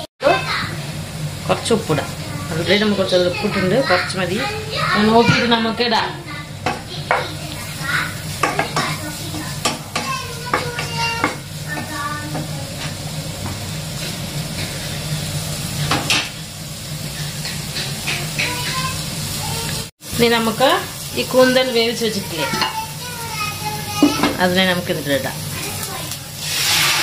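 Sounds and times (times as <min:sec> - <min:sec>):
masala sizzling in a pan: 0:00.0 - 0:27.0
spatula scraping and clicking on pan: 0:17.1 - 0:18.9.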